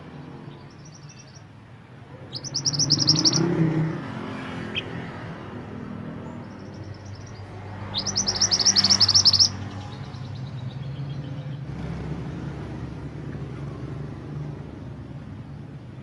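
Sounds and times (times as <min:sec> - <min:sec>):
songbird trilling: 0:00.5 - 0:01.5, 0:02.2 - 0:03.7, 0:04.7 - 0:05.0, 0:06.3 - 0:11.6.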